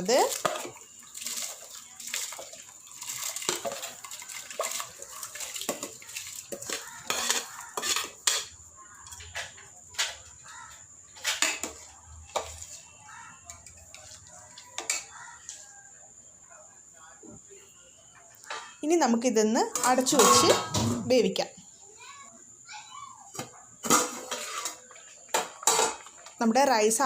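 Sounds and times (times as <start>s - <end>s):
water boiling: 0.0s - 15.9s, 23.8s - 27.0s
metal spoon scraping cooking pot: 0.2s - 10.4s, 19.7s - 21.1s, 23.8s - 26.2s.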